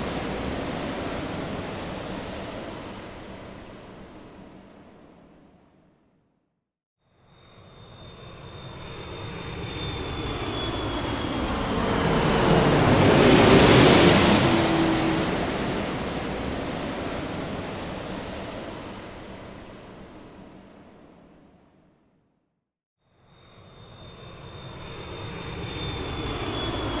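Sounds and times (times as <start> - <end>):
airplane flying past: 7.4 - 20.5, 23.4 - 27.0
engine whine dropping in pitch: 9.5 - 17.2.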